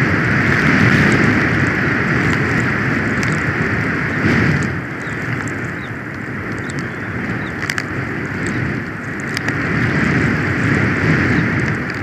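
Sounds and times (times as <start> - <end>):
wind buffeting microphone: 0.0 - 12.0
faint ticks: 4.4 - 10.8.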